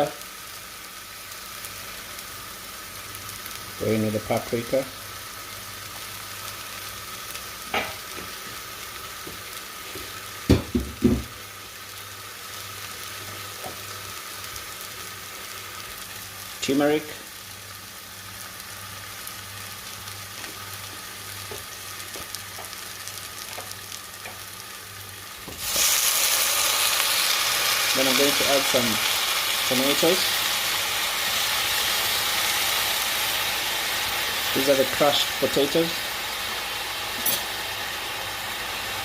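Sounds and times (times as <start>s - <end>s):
onions sizzling in oil: 0.0s - 39.0s.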